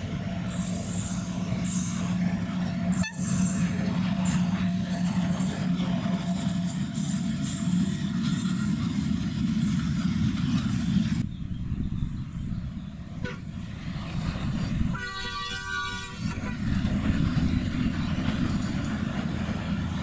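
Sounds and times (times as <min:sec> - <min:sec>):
train rumbling: 0:00.0 - 0:20.0
train horn blast: 0:02.6 - 0:03.8, 0:13.2 - 0:13.6, 0:14.2 - 0:17.4.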